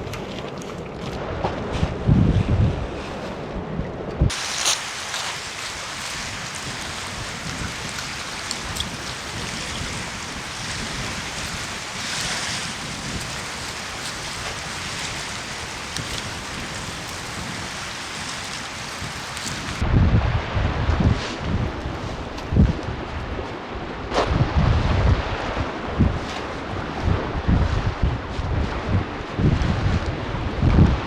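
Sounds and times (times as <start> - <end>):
wind: 0.0 - 31.0
raindrop ticks: 4.3 - 19.8
steady rain hiss: 4.3 - 19.8.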